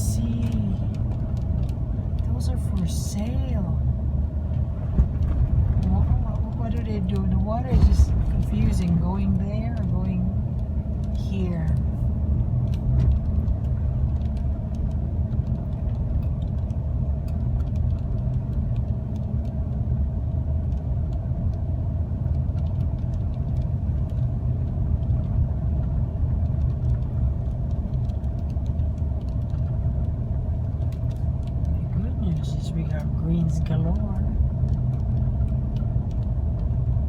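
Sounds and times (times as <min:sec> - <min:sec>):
car engine and tyre rumble: 0:00.0 - 0:37.0.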